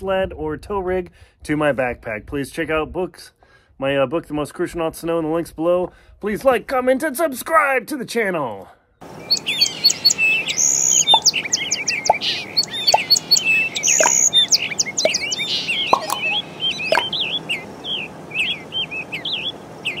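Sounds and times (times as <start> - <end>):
small songbirds chirping: 9.0 - 20.0.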